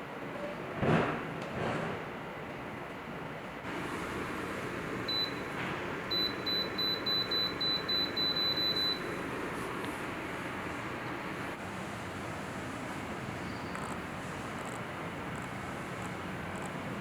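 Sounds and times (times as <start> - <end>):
steady fan noise: 0.0 - 17.0
short high beeps: 6.1 - 9.1.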